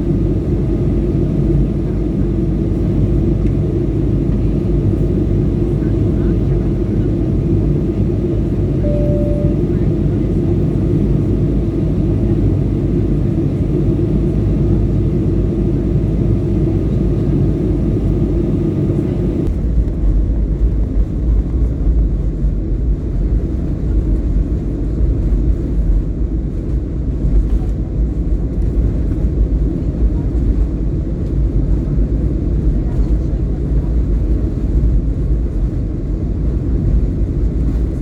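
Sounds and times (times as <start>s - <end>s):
airliner engines rumbling: 0.0s - 38.0s.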